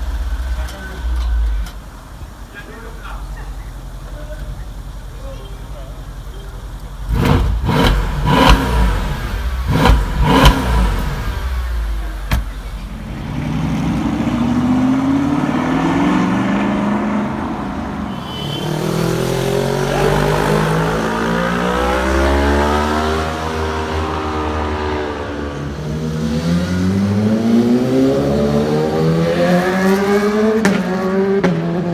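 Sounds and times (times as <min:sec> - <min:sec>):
car engines revving: 0:00.0 - 0:31.9
exhaust cracks: 0:06.0 - 0:18.0.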